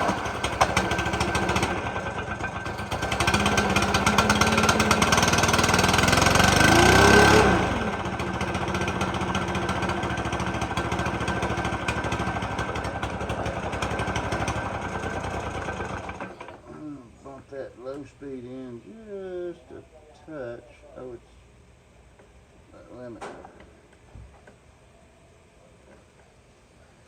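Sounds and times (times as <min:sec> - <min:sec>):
leaf blower engine revving and idling: 0:00.0 - 0:16.9.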